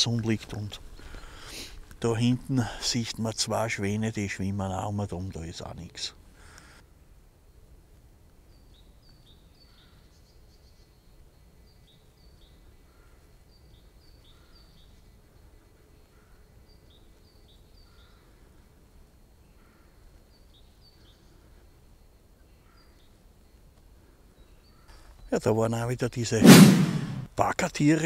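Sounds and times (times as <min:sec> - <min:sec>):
faint background hiss: 0:00.0 - 0:28.0
small bird singing faintly: 0:07.3 - 0:26.4.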